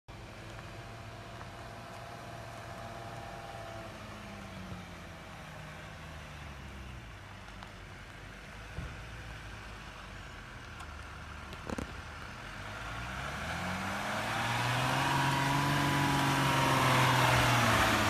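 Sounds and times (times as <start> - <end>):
car engine running at low revs: 0.1 - 18.0.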